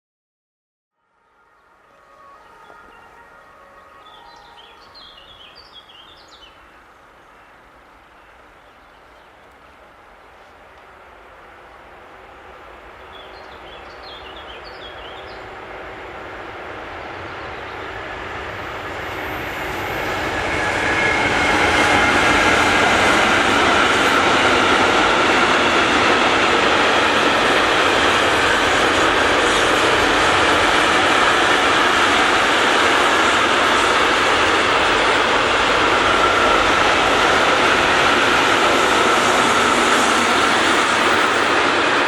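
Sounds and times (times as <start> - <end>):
train passing: 1.0 - 42.0.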